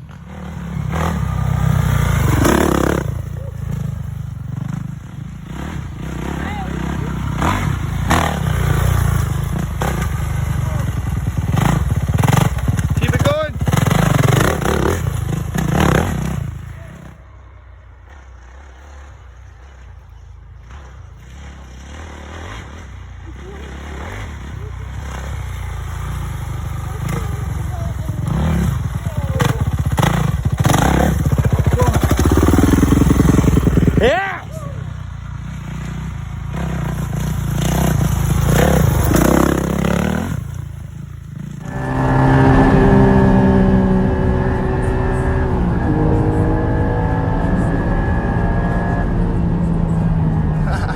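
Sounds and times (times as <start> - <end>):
dirt bike engine running: 0.0 - 50.9
distant drone of engines: 0.0 - 50.9.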